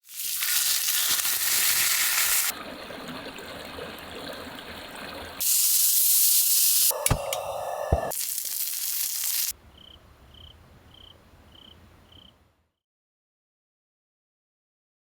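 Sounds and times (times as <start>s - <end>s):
meat sizzling on a griddle: 0.0s - 2.5s, 5.4s - 6.9s, 8.1s - 9.5s.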